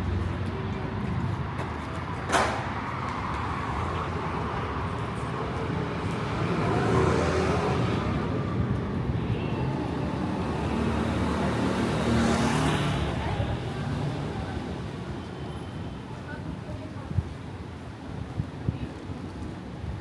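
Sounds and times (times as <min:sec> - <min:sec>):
vehicles passing: 0:00.0 - 0:20.0.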